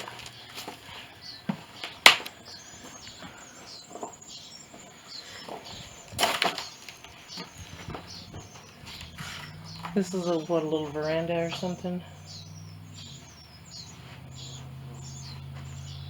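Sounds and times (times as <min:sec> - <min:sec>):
sharp wood crack: 0:00.0 - 0:03.0, 0:05.5 - 0:10.3
footsteps on creaking wooden floor: 0:02.8 - 0:10.1, 0:12.5 - 0:16.0.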